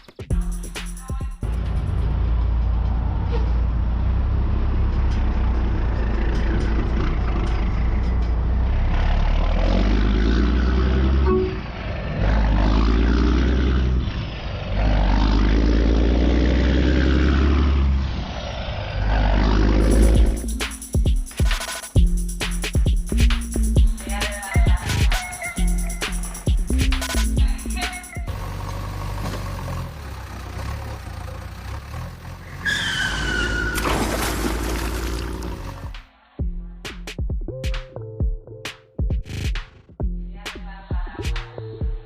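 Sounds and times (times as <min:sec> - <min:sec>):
diesel truck engine revving: 0:01.4 - 0:20.8, 0:25.9 - 0:36.0.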